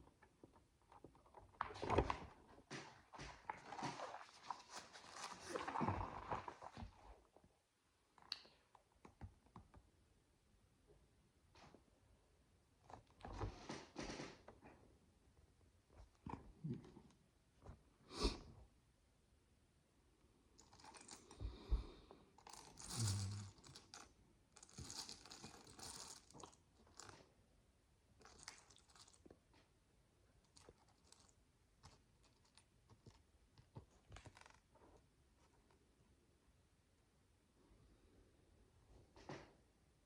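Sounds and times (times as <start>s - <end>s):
rustling plastic bricks: 22.4s - 27.2s.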